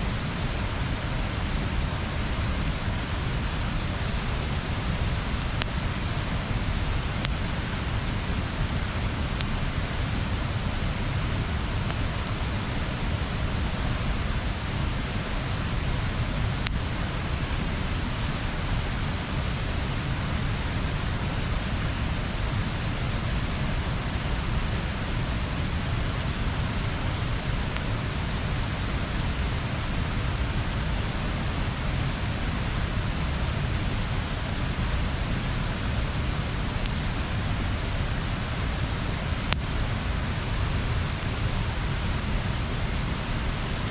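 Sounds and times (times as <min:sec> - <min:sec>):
burning wood popping: 0:00.0 - 0:10.2, 0:17.5 - 0:31.3
bonfire burning: 0:00.0 - 0:43.9.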